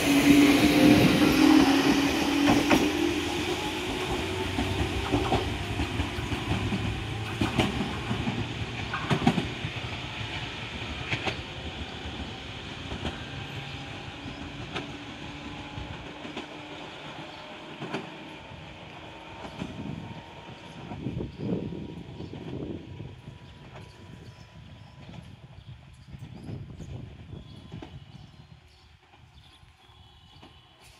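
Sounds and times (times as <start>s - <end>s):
train motor hum: 0.0s - 24.2s
train wheels clacking over joints: 0.3s - 15.1s.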